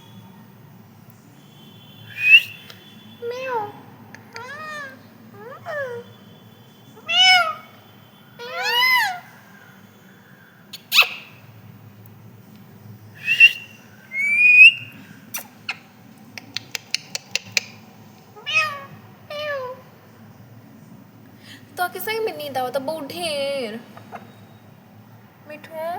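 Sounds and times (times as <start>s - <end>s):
parrot calling: 2.1s - 6.3s, 6.9s - 9.7s, 10.7s - 11.5s, 13.2s - 17.8s, 18.4s - 19.9s, 23.8s - 24.5s
parrot squawk: 3.2s - 6.1s, 7.0s - 7.8s, 8.4s - 9.4s, 10.8s - 11.4s, 18.4s - 19.8s.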